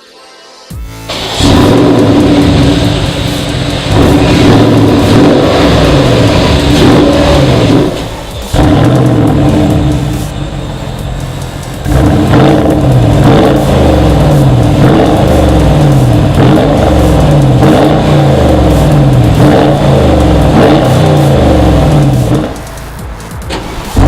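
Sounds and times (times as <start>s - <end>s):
car engine revving: 0.9s - 24.0s.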